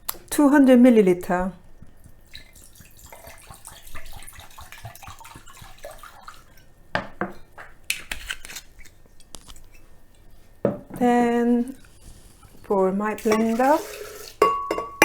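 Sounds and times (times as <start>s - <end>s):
liquid pouring and splashing: 1.8s - 6.7s, 13.2s - 15.0s
kitchenware clinking: 13.2s - 15.0s.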